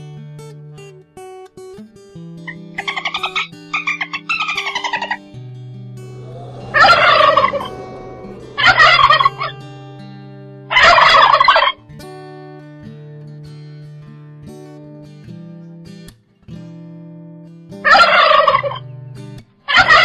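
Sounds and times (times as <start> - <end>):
turkey gobbling: 6.2 - 9.5, 17.9 - 18.8.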